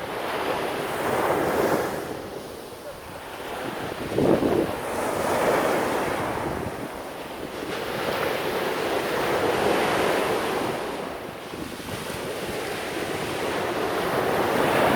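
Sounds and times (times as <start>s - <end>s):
sea waves washing onto shore: 0.0s - 14.9s
wind buffeting microphone: 0.9s - 14.9s.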